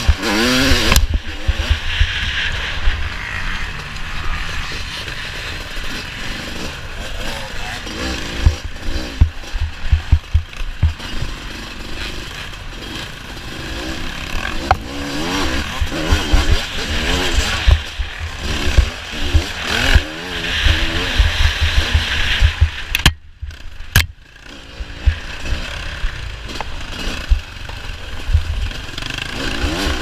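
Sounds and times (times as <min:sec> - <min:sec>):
dirt bike engine revving: 0:00.0 - 0:30.0
thumps through the mic: 0:00.8 - 0:02.1, 0:08.4 - 0:11.0, 0:20.6 - 0:24.2.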